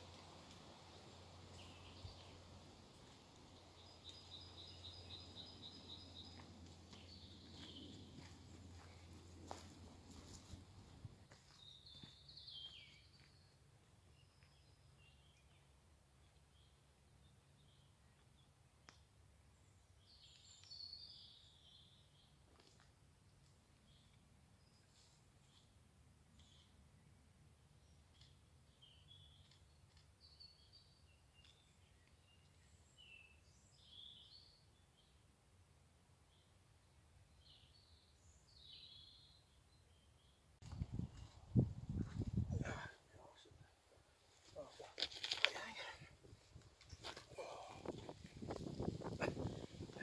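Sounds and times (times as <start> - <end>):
warbled birdsong: 0.7 - 10.5, 27.8 - 35.2, 36.3 - 50.0.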